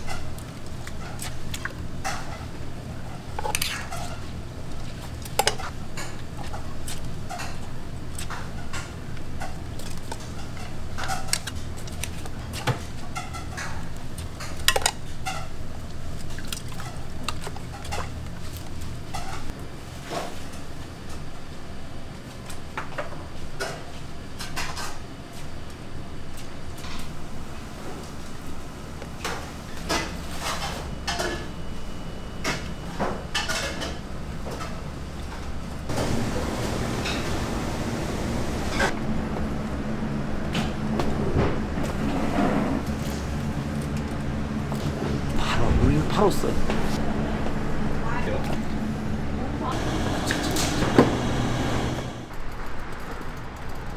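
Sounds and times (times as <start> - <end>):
utensils and containers clinking: 5.0 - 15.6
steady low hum: 25.1 - 52.4.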